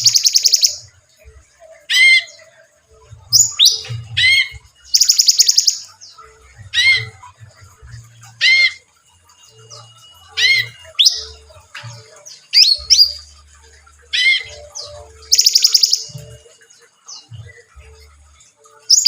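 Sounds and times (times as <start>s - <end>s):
songbird whistled calls: 0.0s - 0.8s, 3.3s - 5.9s, 10.2s - 13.3s, 14.1s - 16.4s.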